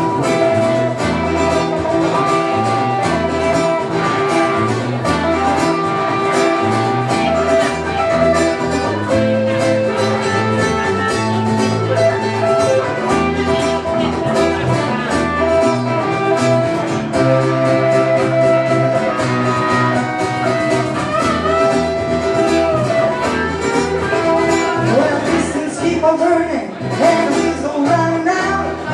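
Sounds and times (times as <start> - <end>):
acoustic guitar: 0.0 - 28.9
bass guitar: 0.0 - 28.9
lead guitar: 0.0 - 28.9.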